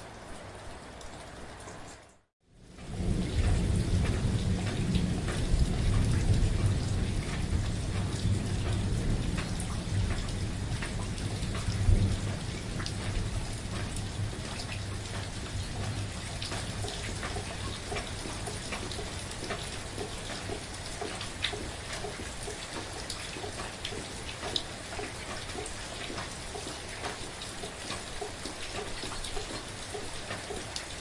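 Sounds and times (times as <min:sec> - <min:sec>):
steady rain: 0:00.0 - 0:31.0
thunder rumbling: 0:02.6 - 0:22.5.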